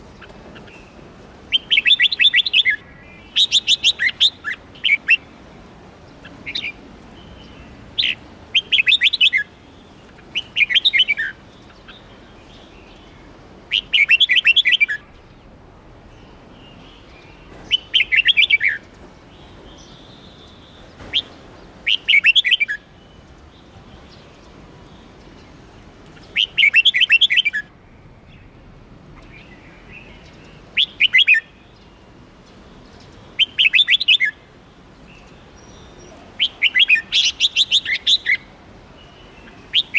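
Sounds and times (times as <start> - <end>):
bird singing bright chirps: 0.1 - 5.4, 16.1 - 39.9.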